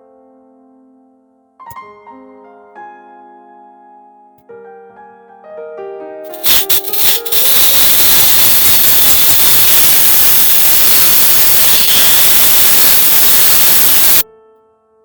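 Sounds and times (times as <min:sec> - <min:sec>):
food sizzling in a frying pan: 0:06.3 - 0:14.2.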